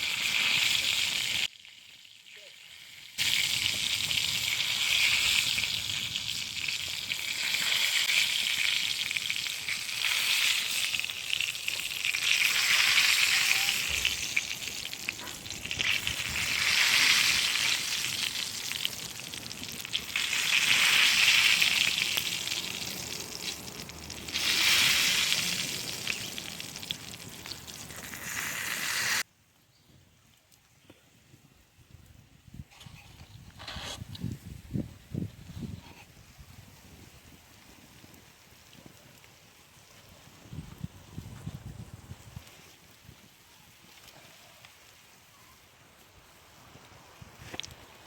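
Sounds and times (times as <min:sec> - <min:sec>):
food sizzling in hot fat: 0:00.0 - 0:29.3.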